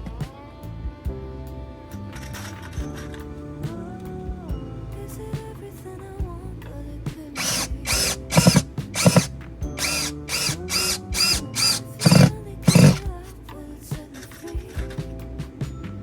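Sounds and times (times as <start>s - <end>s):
quiet background music: 0.0s - 16.0s
small drill whirring: 7.4s - 13.0s.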